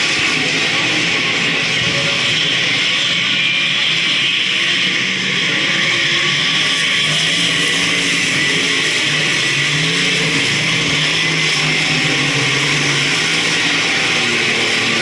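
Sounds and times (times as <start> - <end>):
race car engines roaring: 0.0 - 15.0.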